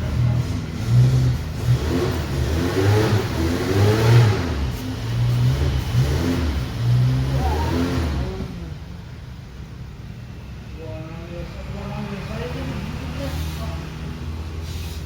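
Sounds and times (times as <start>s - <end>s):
vehicle engine revving: 0.0s - 9.4s.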